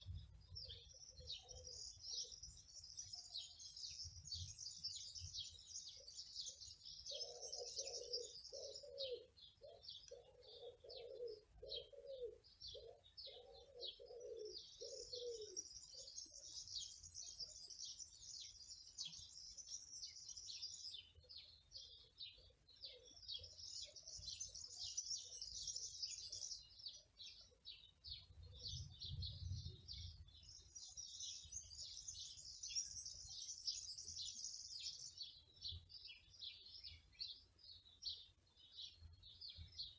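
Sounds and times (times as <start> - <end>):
songbirds twittering: 0.0 - 39.9
dove cooing: 7.1 - 15.7.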